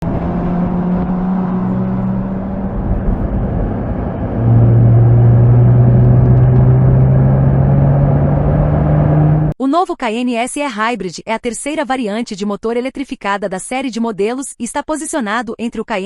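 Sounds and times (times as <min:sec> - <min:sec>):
car engine accelerating: 0:00.0 - 0:09.6.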